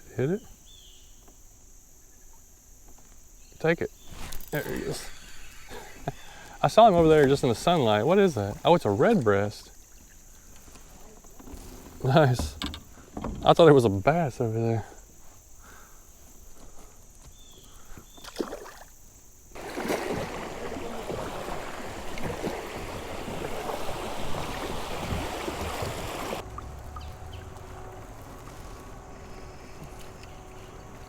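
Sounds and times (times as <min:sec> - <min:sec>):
small knocks: 0:12.3 - 0:13.6
water rushing and splashing: 0:19.6 - 0:31.0.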